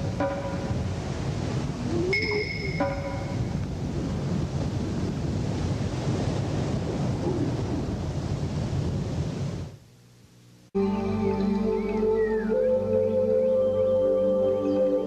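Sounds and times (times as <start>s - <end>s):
wind on microphone: 0.0s - 9.8s.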